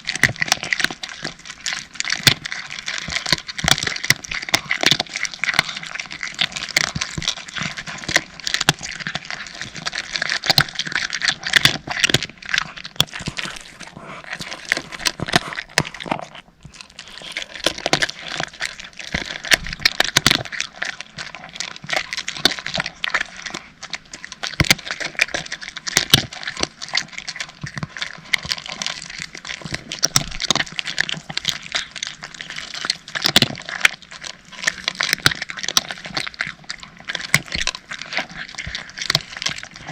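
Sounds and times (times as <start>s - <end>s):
cats crunching dry kibble: 0.0s - 39.9s.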